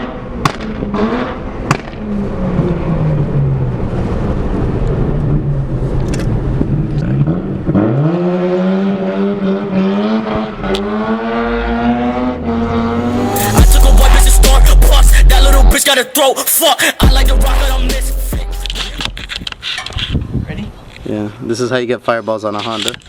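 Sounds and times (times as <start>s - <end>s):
car engine accelerating: 0.0s - 15.8s.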